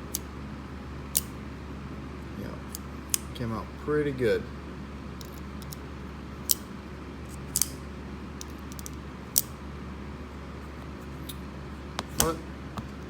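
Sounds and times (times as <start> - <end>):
folding knife clicking: 7.4 - 7.8, 8.4 - 9.6.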